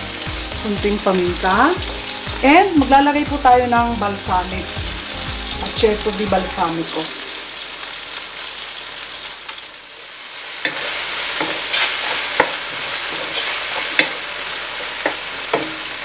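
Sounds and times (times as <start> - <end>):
tomatoes sizzling in a pan: 0.0 - 16.0
wooden spatula knocking on pan: 15.0 - 15.8.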